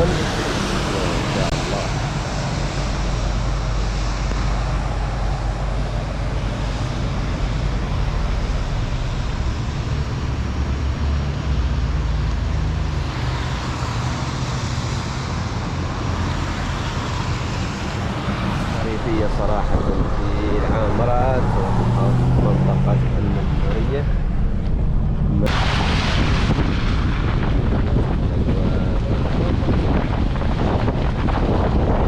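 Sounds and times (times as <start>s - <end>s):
car engine and road hum: 0.0s - 32.0s.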